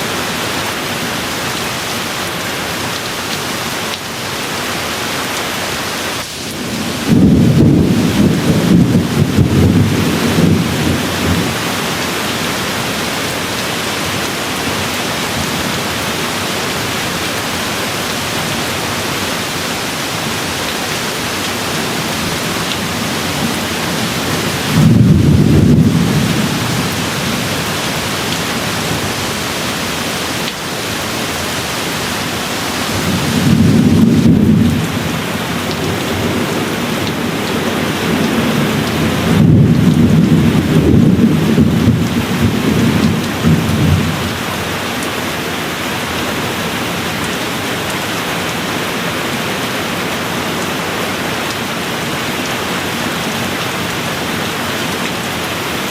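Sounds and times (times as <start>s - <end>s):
steady rain falling: 0.0s - 55.9s
distant thunder rolls: 6.5s - 11.8s, 22.0s - 31.3s.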